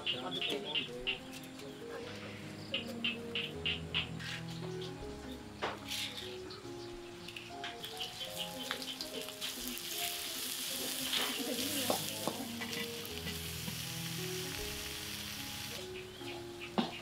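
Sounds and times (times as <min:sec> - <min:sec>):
spice paste sizzling in a wok: 0:07.8 - 0:17.0.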